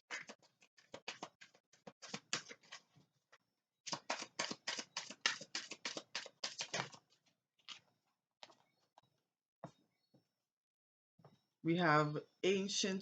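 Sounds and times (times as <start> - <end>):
cards being shuffled by hand: 0.1 - 2.9, 3.9 - 7.8.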